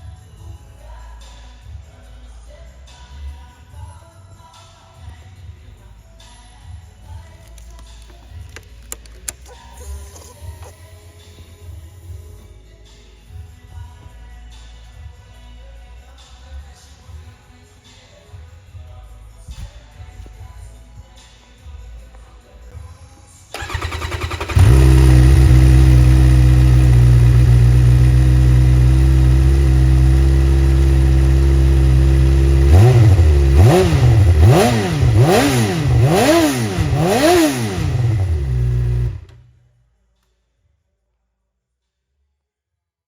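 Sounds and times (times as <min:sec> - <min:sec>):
engine starter cranking: 0:23.6 - 0:28.0, 0:32.8 - 0:39.4
engine throttle blips: 0:23.6 - 0:39.4
motorcycle engine idling: 0:23.6 - 0:39.4.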